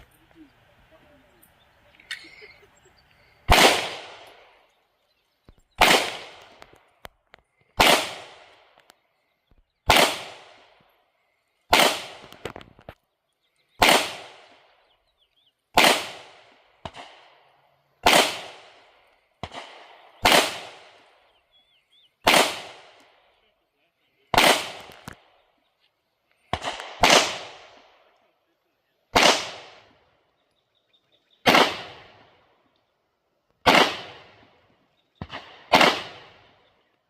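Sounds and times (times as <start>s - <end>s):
pistol shots: 3.4s - 4.6s, 5.8s - 7.1s, 7.7s - 8.9s, 9.8s - 10.8s, 11.7s - 12.6s, 13.8s - 14.9s, 15.7s - 21.4s, 22.2s - 23.2s, 24.3s - 25.4s, 26.5s - 28.0s, 29.1s - 30.0s, 31.4s - 32.4s, 33.6s - 34.6s, 35.2s - 36.7s.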